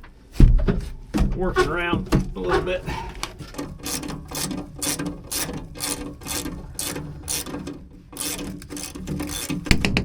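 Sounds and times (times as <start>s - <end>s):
ratchet wrench clicking: 3.8s - 7.6s, 8.2s - 9.8s.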